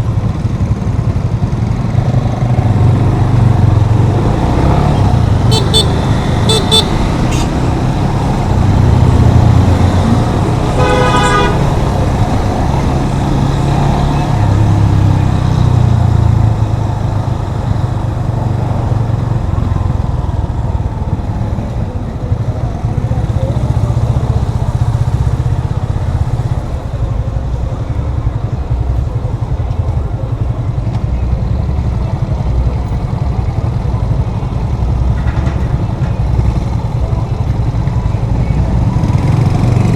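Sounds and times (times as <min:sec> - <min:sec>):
motorcycle engine running: 0:00.0 - 0:39.9
vehicle horn honking: 0:05.4 - 0:07.9, 0:10.7 - 0:11.9.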